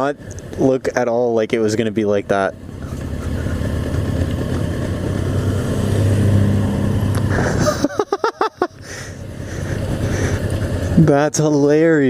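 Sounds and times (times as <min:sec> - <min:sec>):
motorcycle engine running: 0:00.2 - 0:12.0
person laughing: 0:02.8 - 0:05.8, 0:07.2 - 0:10.9.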